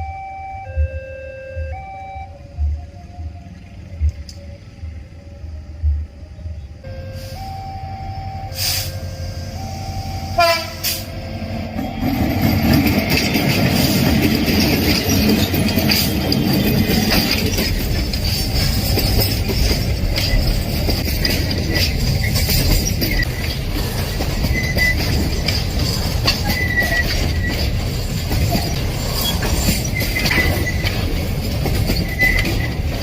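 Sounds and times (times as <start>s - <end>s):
level-crossing two-tone warning: 0.0s - 31.1s
train wheels rumbling on rail: 2.2s - 7.6s, 8.5s - 33.0s
train horn: 8.5s - 11.1s
high wheel squeal: 21.6s - 31.2s, 31.8s - 33.0s.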